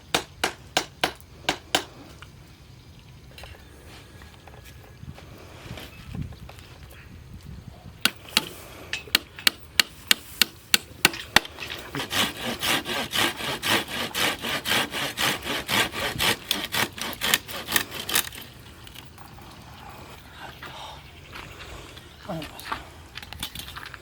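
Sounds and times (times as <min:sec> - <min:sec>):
rasping strokes on wood: 0:11.8 - 0:18.5.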